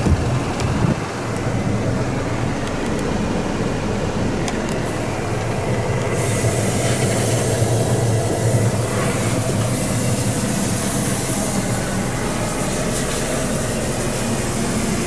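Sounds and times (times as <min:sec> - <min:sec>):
diesel engine idling: 0:00.0 - 0:15.0
hiss: 0:04.8 - 0:15.0.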